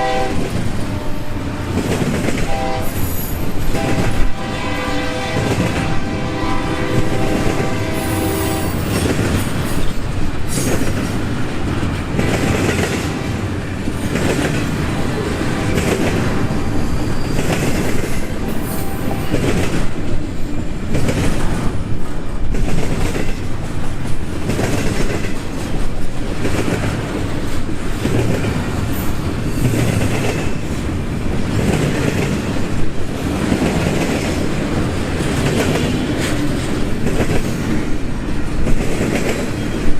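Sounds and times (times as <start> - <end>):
locomotive horn: 0.0 - 1.8, 2.4 - 9.0, 13.0 - 13.5, 14.8 - 17.0, 18.4 - 19.6.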